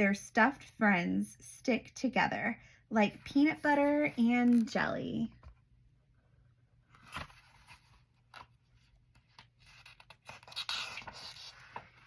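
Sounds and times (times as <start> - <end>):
paper rustling: 6.9 - 12.0
paper clicks and scratches: 9.1 - 12.0.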